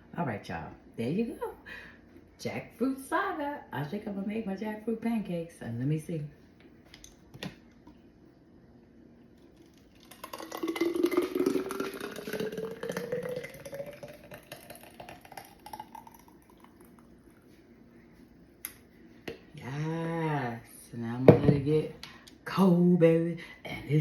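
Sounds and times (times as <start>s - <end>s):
liquid pouring into container: 9.2s - 17.5s.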